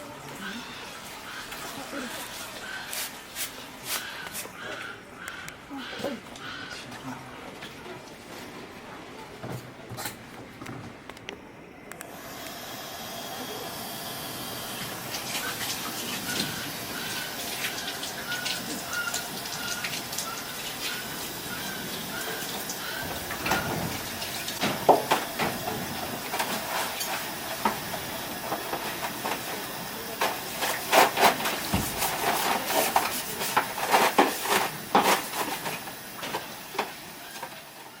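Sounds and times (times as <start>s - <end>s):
hawk calling: 13.5s - 24.6s.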